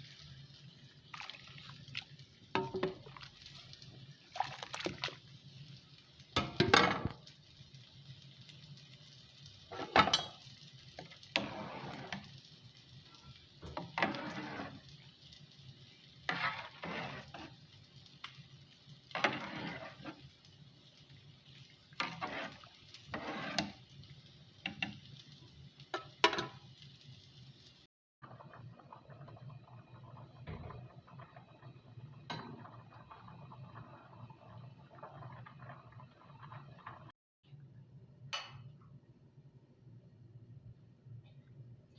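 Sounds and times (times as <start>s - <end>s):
utensil scraping food in pot: 11.2s - 12.4s, 13.6s - 15.0s, 16.2s - 17.7s, 19.1s - 20.3s, 21.9s - 23.9s.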